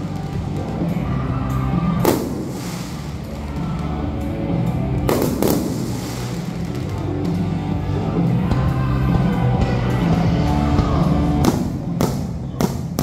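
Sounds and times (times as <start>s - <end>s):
music playing: 0.0s - 13.0s
fireworks bursting: 2.0s - 3.7s, 5.0s - 7.4s.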